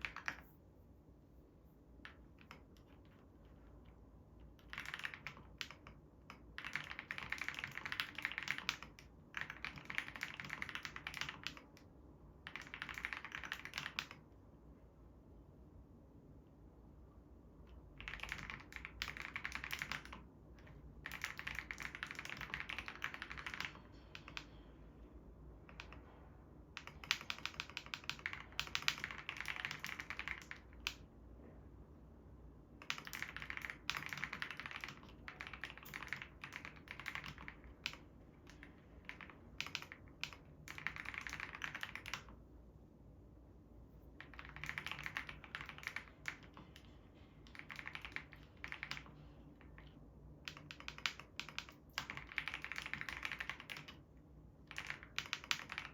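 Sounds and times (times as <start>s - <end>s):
mechanical keyboard key clicks: 50.4s - 54.0s.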